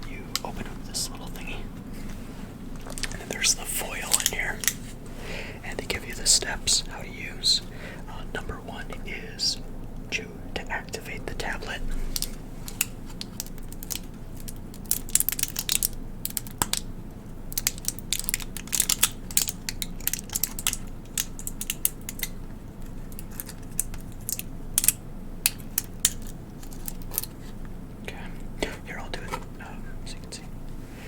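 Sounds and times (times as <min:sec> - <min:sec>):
plastic and foil packaging crinkling: 0:02.7 - 0:05.0, 0:12.0 - 0:16.9, 0:17.5 - 0:25.0, 0:25.6 - 0:27.6.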